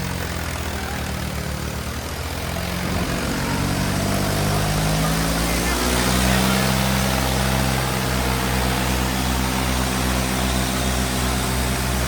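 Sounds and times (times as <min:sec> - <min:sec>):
diesel tractor engines running: 0:00.0 - 0:12.0.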